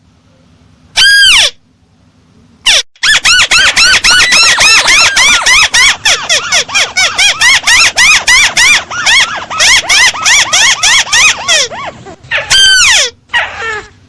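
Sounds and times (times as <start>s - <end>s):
crake calling squeaky notes: 2.7s - 13.5s.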